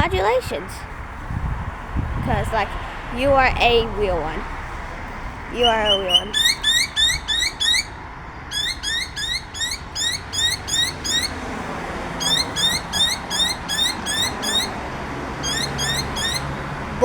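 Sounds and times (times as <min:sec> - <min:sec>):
bird chirping: 0:05.5 - 0:11.5, 0:12.2 - 0:16.7.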